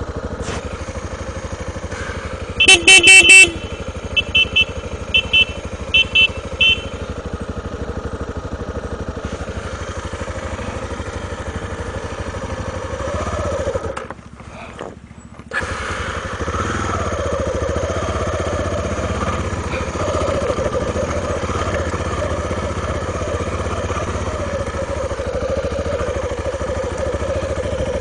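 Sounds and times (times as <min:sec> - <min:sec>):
motorcycle engine running: 0:00.0 - 0:28.0
motorcycle horn blasts: 0:02.3 - 0:07.4.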